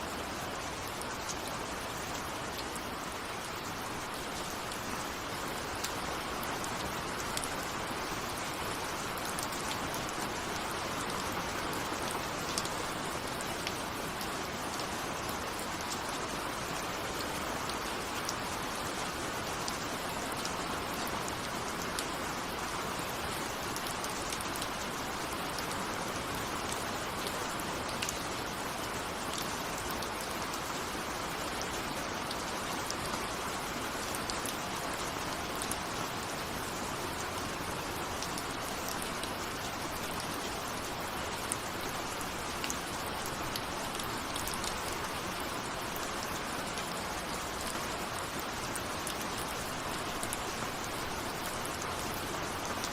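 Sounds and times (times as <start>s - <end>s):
steady rain hissing: 0.0s - 52.9s.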